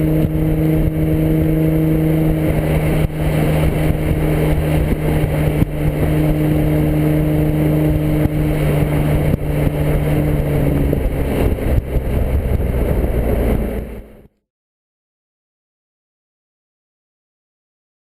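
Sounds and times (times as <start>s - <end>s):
car engine exhaust note: 0.0s - 14.3s.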